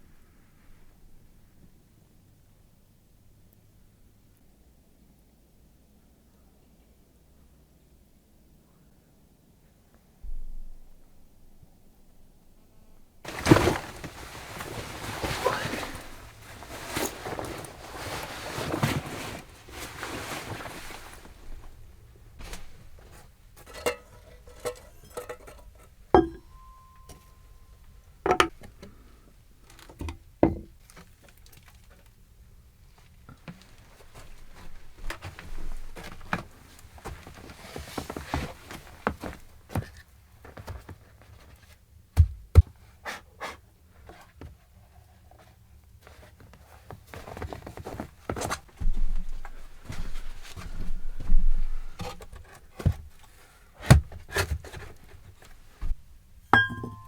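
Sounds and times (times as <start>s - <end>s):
rustling handling noise: 13.2s - 57.0s
knocks and clinks of hard objects: 23.6s - 27.4s, 28.3s - 28.7s, 56.6s - 57.0s
heavy thumps: 26.2s - 27.3s
short ringing tone: 56.6s - 57.0s.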